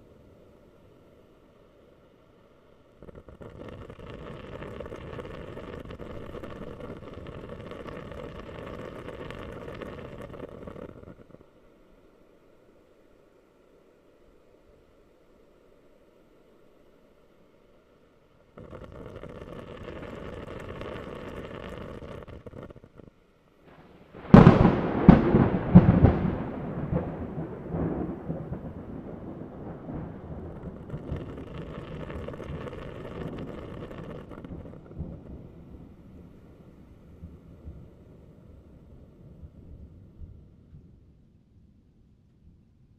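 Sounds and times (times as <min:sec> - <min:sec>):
steady hiss: 0:00.0 - 0:41.1
thunder cracking and rumbling: 0:23.7 - 0:41.1.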